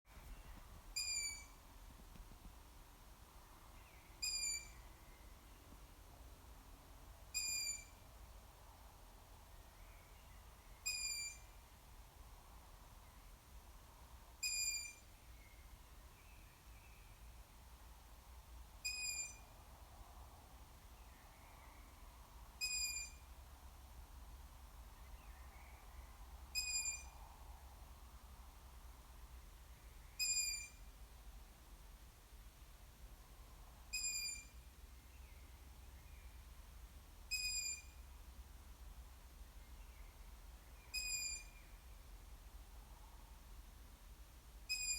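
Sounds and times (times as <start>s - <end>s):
owl squeaky begging call: 1.0s - 1.6s, 4.2s - 4.8s, 7.3s - 8.0s, 10.8s - 11.5s, 14.4s - 15.0s, 18.8s - 19.4s, 22.6s - 23.2s, 26.6s - 27.2s, 30.2s - 30.9s, 33.9s - 34.6s, 37.3s - 38.0s, 40.9s - 41.7s, 44.7s - 44.9s.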